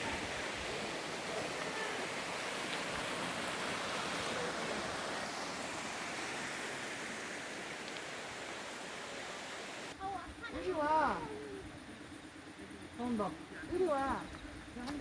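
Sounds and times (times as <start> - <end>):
stream rushing: 0.0 - 10.0.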